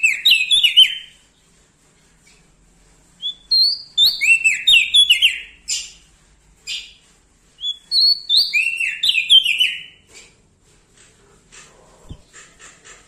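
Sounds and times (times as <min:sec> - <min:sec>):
bird singing: 0:00.0 - 0:01.2, 0:03.2 - 0:06.0, 0:07.6 - 0:10.0
scratchy bird calls: 0:00.0 - 0:13.0.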